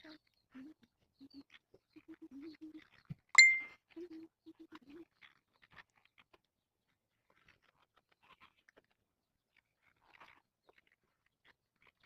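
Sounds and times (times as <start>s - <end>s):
cat eating crunchy ticks: 0.2s - 12.0s
sharp ringing click: 3.4s - 3.7s.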